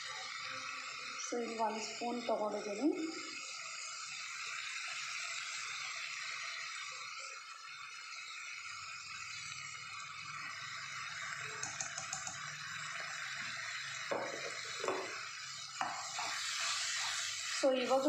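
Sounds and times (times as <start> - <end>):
vegetables sizzling in hot oil: 0.0 - 18.0
utensil knocking against pan: 14.1 - 15.1.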